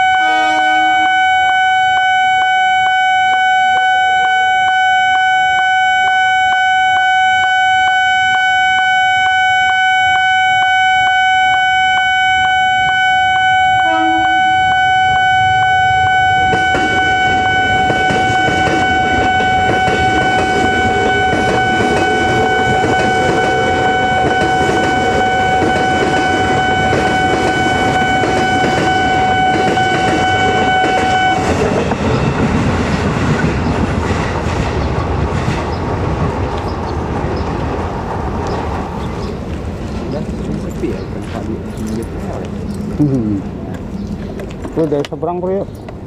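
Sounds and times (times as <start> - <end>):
level crossing warning tone: 0.0 - 33.7
train wheels rumbling on rails: 14.4 - 46.0.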